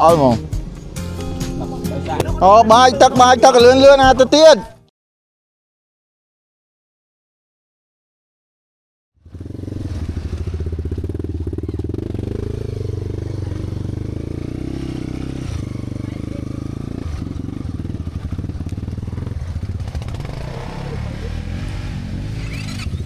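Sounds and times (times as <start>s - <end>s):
motorcycle engine running: 0.0s - 4.5s, 9.2s - 23.0s.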